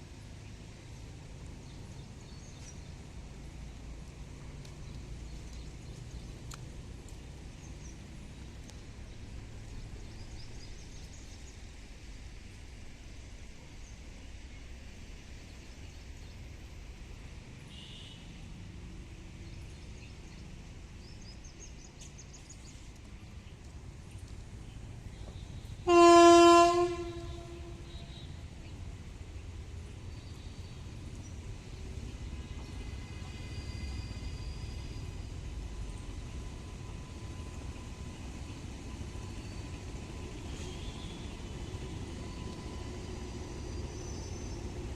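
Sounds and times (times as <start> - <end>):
locomotive horn: 25.4 - 28.4.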